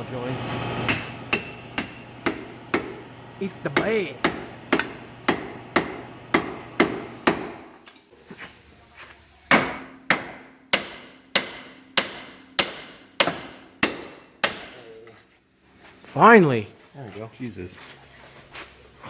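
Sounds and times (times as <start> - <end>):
hammer striking metal: 0.9 - 3.1, 3.8 - 7.6, 9.5 - 14.8.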